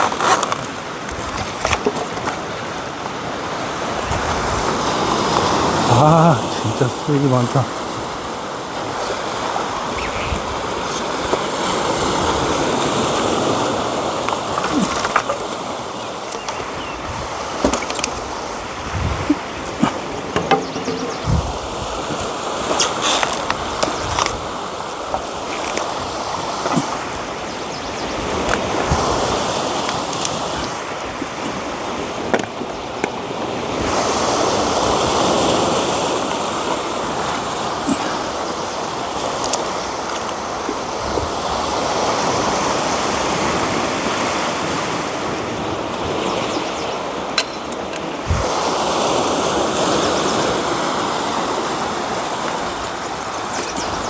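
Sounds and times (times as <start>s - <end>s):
waves washing onto shore: 0.0s - 54.0s.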